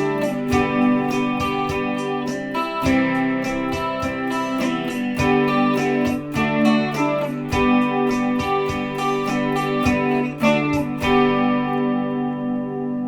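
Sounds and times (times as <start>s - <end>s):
guitar strumming chords: 0.0s - 13.0s.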